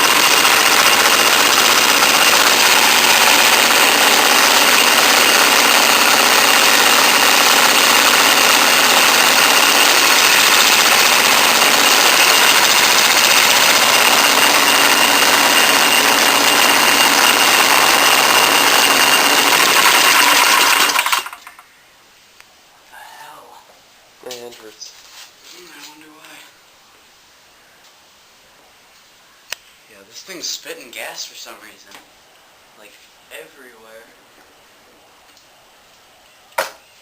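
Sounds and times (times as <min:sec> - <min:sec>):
go-kart engine running: 0:00.0 - 0:21.4.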